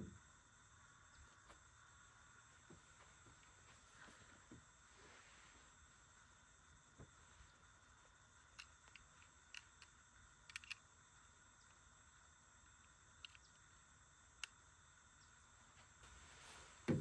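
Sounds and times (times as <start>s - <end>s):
faint background hiss: 0.0s - 17.0s
faint clicks: 8.4s - 10.9s, 12.7s - 13.7s.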